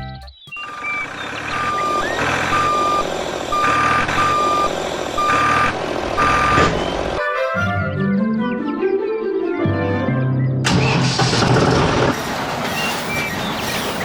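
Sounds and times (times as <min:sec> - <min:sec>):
reversing alarm beeps: 0:00.5 - 0:07.2
engine rumble: 0:00.9 - 0:07.2, 0:10.7 - 0:13.1.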